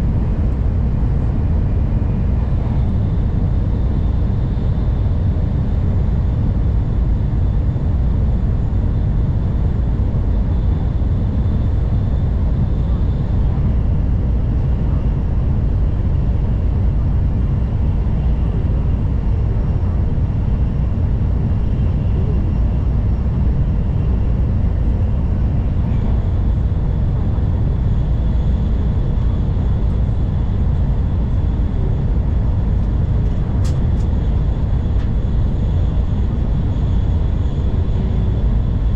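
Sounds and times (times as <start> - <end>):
brief click: 33.6 - 34.1.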